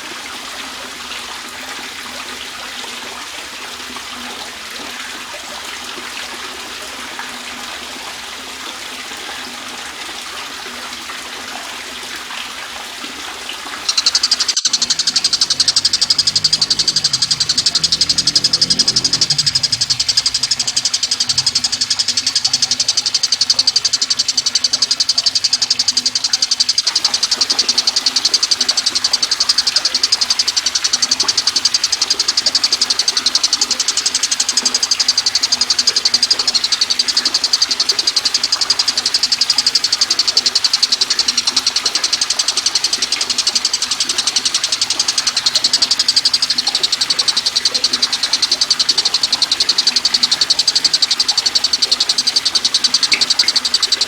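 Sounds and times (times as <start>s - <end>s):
bird high-pitched trill: 13.8s - 54.0s.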